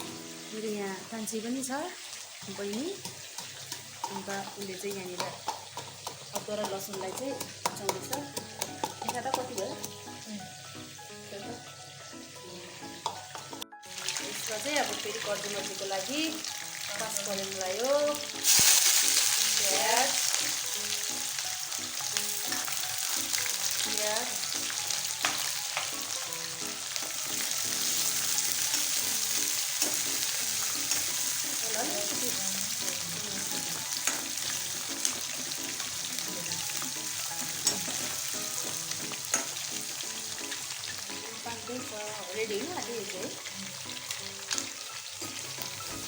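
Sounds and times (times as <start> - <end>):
onions sizzling in hot oil: 0.0 - 46.0.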